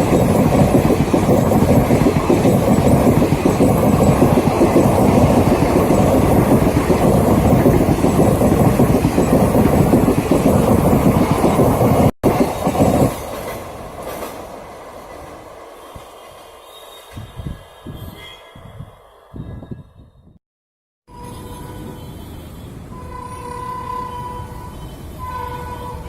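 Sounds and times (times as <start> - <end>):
train wheels clattering on rails: 0.0 - 16.2.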